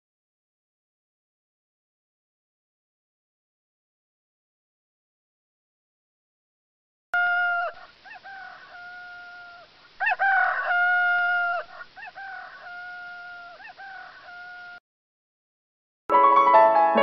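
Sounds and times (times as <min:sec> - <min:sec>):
rooster crowing: 0:07.2 - 0:14.8.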